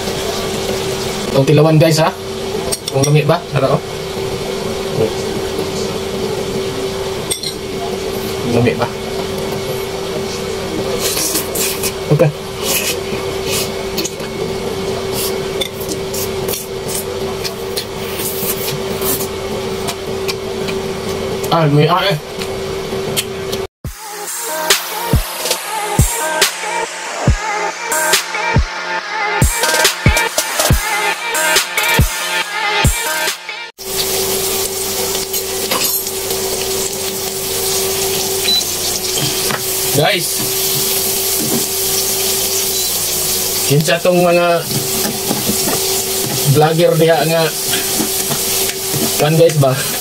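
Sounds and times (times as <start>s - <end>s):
onions sizzling in hot oil: 0.0s - 1.5s, 33.8s - 44.0s, 44.6s - 50.0s
steady hum: 0.0s - 50.0s.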